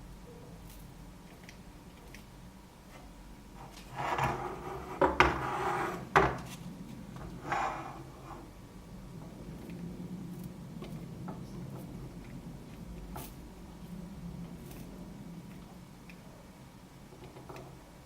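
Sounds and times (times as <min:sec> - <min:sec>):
scraping on a hard surface: 0:02.9 - 0:08.5.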